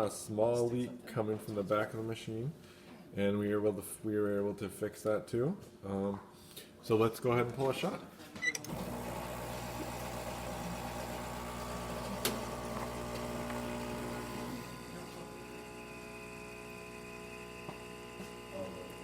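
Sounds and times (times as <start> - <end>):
espresso machine pump humming: 8.7 - 19.0.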